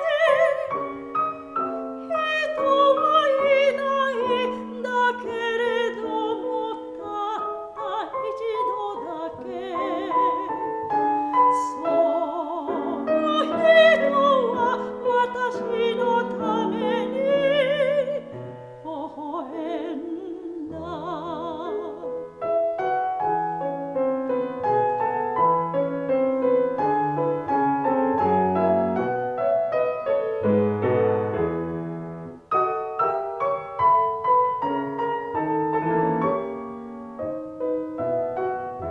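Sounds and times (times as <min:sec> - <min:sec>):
soprano singing with vibrato: 0:00.0 - 0:22.5
piano accompaniment: 0:00.0 - 0:38.9.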